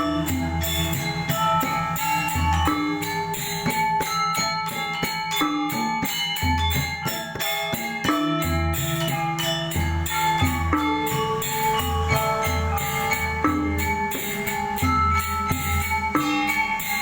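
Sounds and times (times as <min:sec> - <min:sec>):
deep low gong tone: 0:00.0 - 0:04.4, 0:10.0 - 0:17.0
sharp percussive strokes: 0:00.0 - 0:07.2, 0:08.8 - 0:17.0
metallophones ringing: 0:00.0 - 0:17.0.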